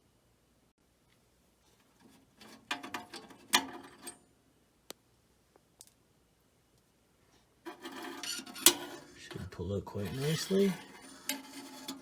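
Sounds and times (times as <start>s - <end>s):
screwdriver scraping metal screw: 7.7s - 9.1s, 10.0s - 12.0s.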